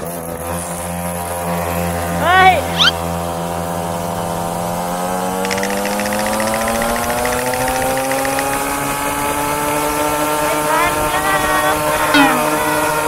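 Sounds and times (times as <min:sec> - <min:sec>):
two-stroke engine accelerating: 0:00.0 - 0:13.0
fast rattling ticks: 0:05.3 - 0:09.9.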